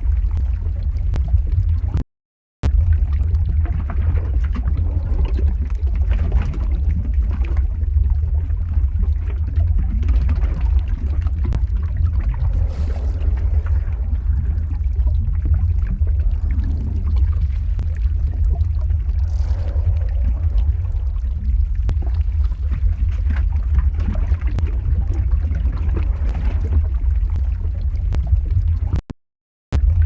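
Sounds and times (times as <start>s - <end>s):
deep lava rumble: 0.0s - 2.0s, 2.6s - 29.0s, 29.7s - 30.0s
sharp crackles: 10.5s - 25.1s.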